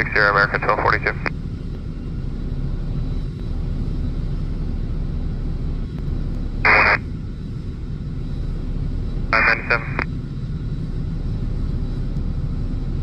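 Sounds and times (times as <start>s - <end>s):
radio crackle: 0.0s - 1.3s, 6.7s - 7.0s, 9.4s - 10.1s
jet engines rumbling: 0.0s - 13.0s.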